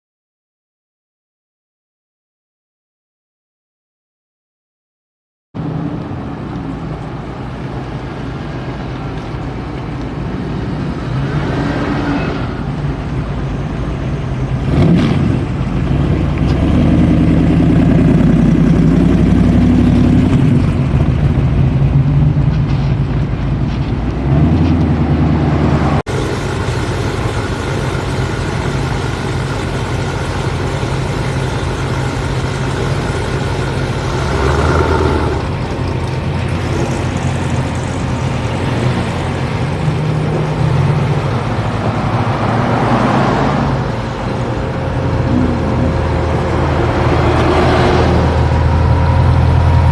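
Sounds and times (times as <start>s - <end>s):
vehicle engine revving: 14.5s - 23.1s, 24.1s - 49.9s.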